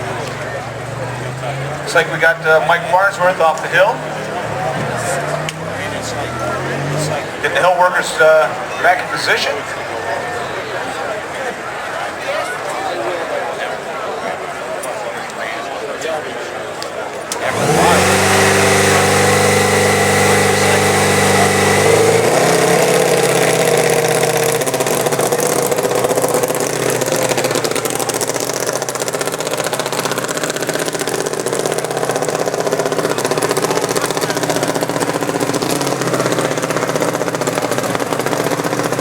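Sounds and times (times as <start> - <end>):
motorcycle engine running: 17.4 - 39.0.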